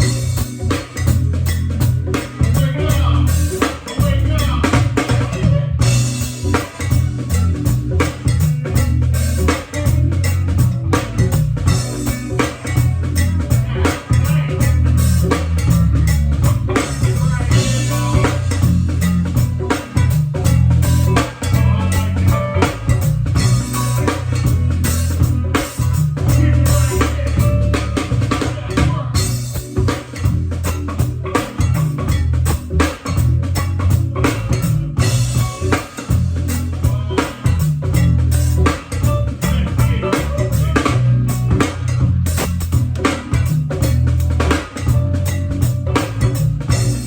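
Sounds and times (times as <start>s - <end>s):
band music: 0.0s - 47.0s
drum kit: 0.0s - 47.0s
heavy bass line: 0.0s - 47.0s.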